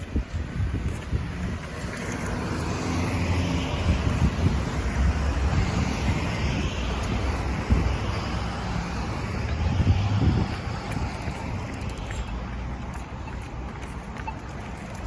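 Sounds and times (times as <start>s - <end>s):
road traffic noise: 0.0s - 15.0s
wind rumbling on microphone: 0.0s - 15.0s.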